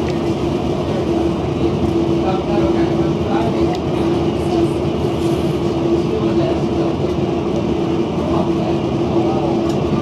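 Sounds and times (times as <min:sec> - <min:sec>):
train wheels rumbling on track: 0:00.0 - 0:10.0.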